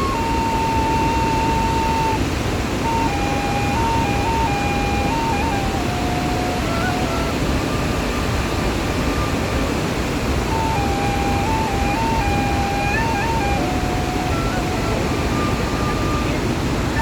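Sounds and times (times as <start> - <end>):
faint thin tune of held notes: 0.0 - 2.2, 2.8 - 7.3, 10.5 - 17.0
waterfall roaring: 0.0 - 17.0.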